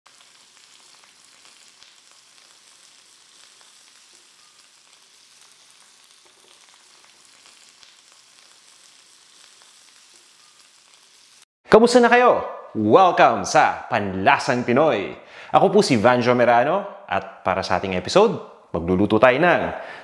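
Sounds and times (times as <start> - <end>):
food sizzling in a wok: 0.1 - 11.5.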